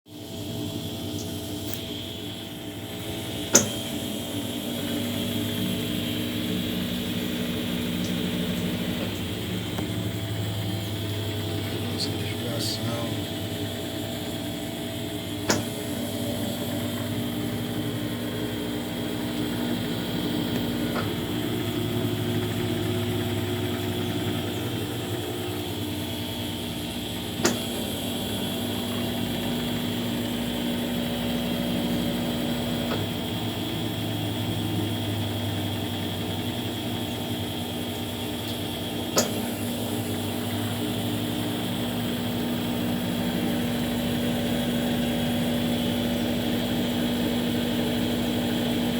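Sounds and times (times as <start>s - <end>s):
washing machine spinning: 0.1s - 48.9s.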